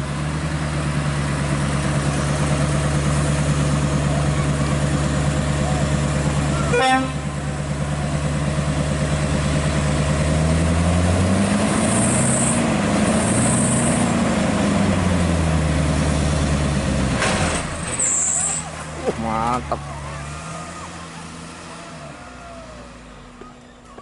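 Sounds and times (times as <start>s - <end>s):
truck diesel engine running: 0.0s - 24.0s.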